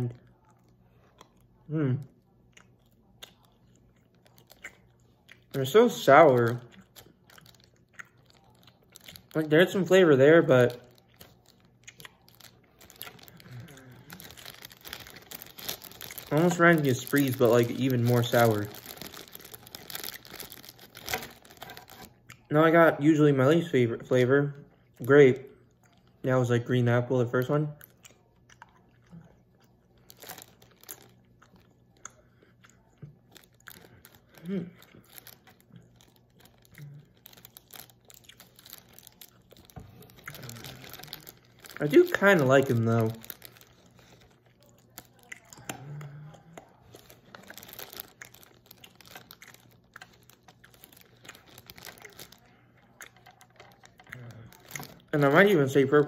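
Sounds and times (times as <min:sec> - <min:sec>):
candy chewing mouth clicks: 0:02.4 - 0:10.0, 0:10.6 - 0:22.5, 0:27.8 - 0:55.8
chewing mouth clicks: 0:02.5 - 0:05.5, 0:44.6 - 0:47.5.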